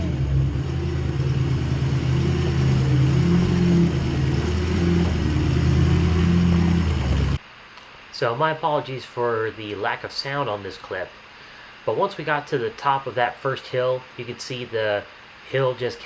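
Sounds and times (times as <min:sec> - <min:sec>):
diesel engine running under load: 0:00.0 - 0:07.4.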